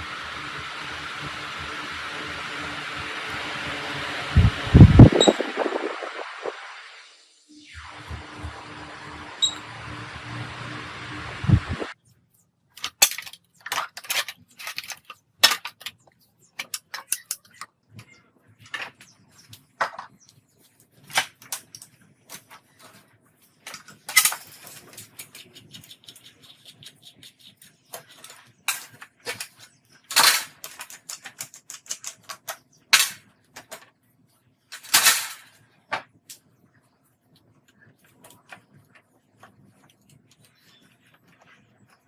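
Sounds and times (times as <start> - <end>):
plastic and metal parts clicking: 12.8 - 16.0, 27.9 - 33.9.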